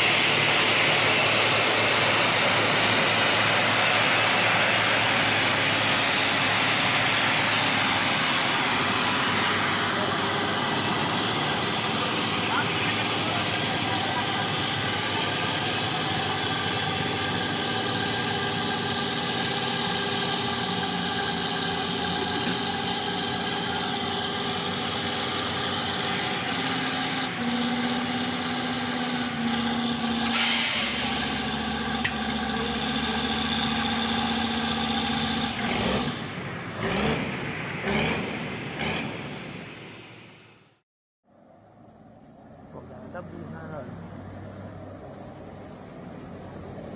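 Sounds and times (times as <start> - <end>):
truck diesel engine running: 0.0 - 40.6
air brake hiss: 30.3 - 31.5.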